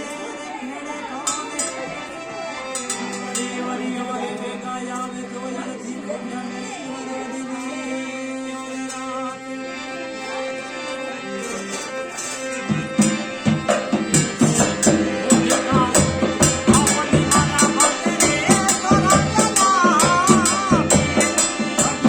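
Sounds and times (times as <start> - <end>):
held melodic tones: 0.0 - 22.0
fast percussion with jingles: 12.7 - 22.0.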